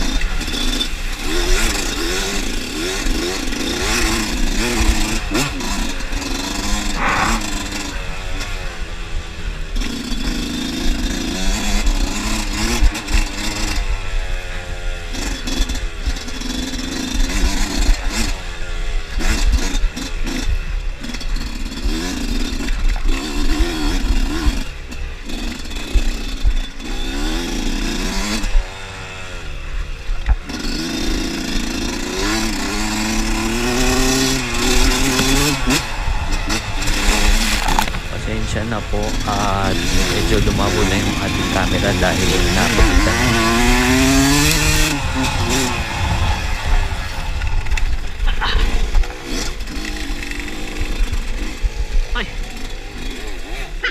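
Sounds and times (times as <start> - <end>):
dirt bike engine revving: 0.0 - 53.9
steady rushing noise: 4.4 - 9.7, 32.5 - 52.1.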